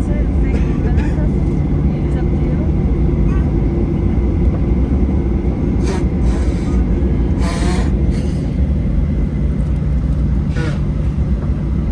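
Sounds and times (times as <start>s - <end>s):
airplane cabin rumble: 0.0s - 11.9s.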